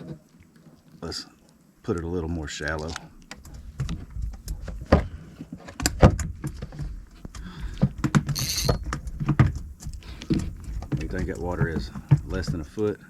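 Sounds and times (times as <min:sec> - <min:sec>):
fishing tackle knocks and rustling: 0:02.9 - 0:12.8.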